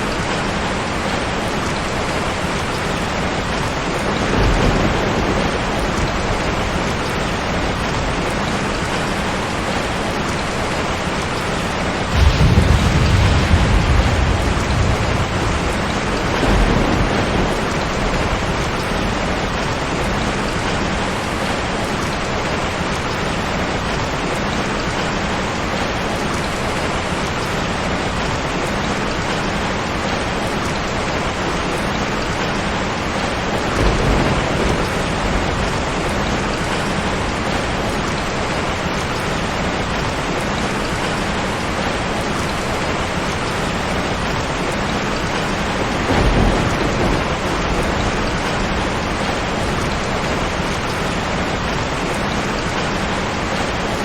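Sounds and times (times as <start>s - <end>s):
heavy rain falling: 0.0s - 54.0s
low rumbles of thunder: 1.6s - 21.4s, 33.3s - 38.8s, 43.5s - 53.2s.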